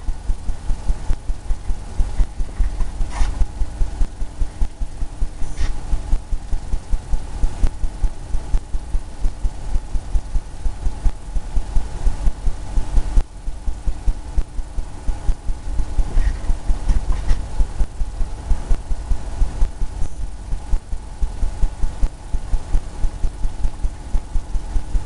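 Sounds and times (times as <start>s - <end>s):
paintbrush dabbing on canvas: 2.1s - 3.5s, 5.4s - 6.0s.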